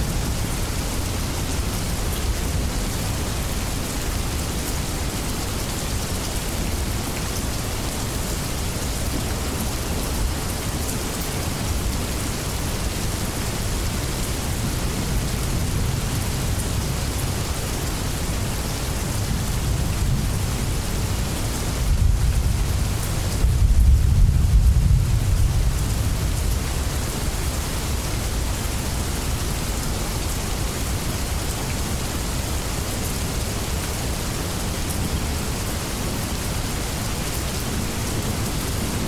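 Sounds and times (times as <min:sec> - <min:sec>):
rain falling: 0:00.0 - 0:39.0
low rumble of thunder: 0:19.2 - 0:27.1.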